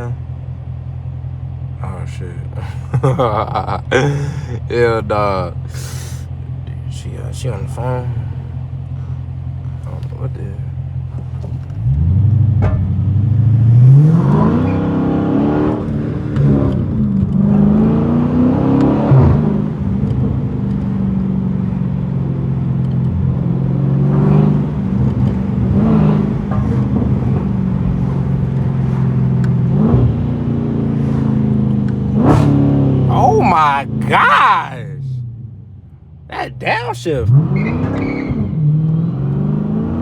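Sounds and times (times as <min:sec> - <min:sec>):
car engine accelerating hard: 0:37.3 - 0:40.0.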